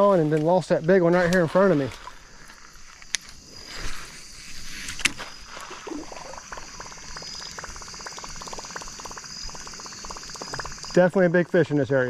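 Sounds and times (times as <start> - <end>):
insects humming: 0.0 - 12.0
fishing lure ticking across water: 6.4 - 11.1.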